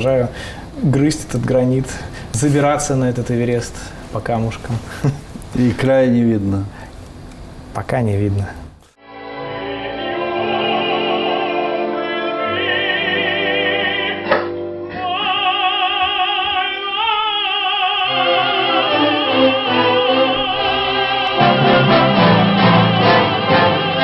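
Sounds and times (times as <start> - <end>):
sustained accompaniment: 9.0 - 24.0
operatic solo voice singing: 14.9 - 24.0.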